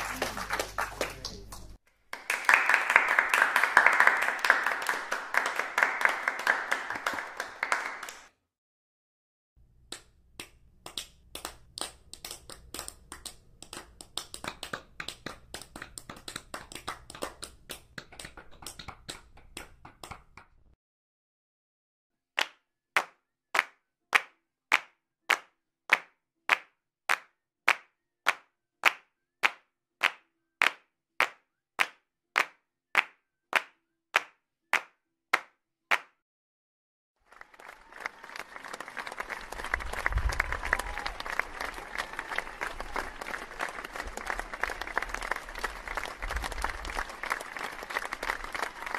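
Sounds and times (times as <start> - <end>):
crowd applause: 0.0 - 8.3, 37.2 - 48.9
person clapping steadily: 0.0 - 8.3, 9.8 - 20.8, 22.4 - 36.2, 37.3 - 48.9
scattered clapping: 0.0 - 8.3, 9.9 - 20.7, 37.2 - 48.9.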